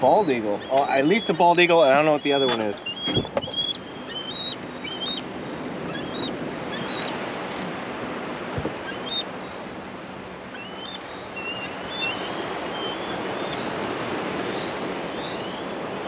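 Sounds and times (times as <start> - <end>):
waves: 0.0 - 16.0
wind: 0.0 - 16.0
high thin bird chirps: 5.9 - 7.6, 10.6 - 13.7.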